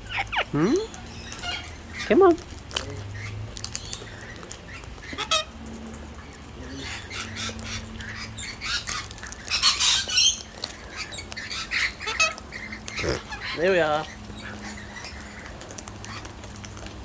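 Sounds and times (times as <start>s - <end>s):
parrots squawking: 0.0s - 16.9s
loud bird screech: 13.0s - 13.6s.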